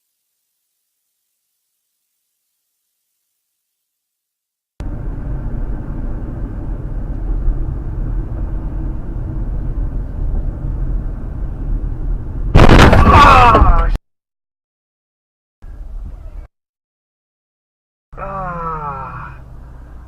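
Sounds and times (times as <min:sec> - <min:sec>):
car road and engine rumble: 0:04.8 - 0:13.9, 0:18.2 - 0:20.0
sudden loud noise: 0:12.5 - 0:14.0.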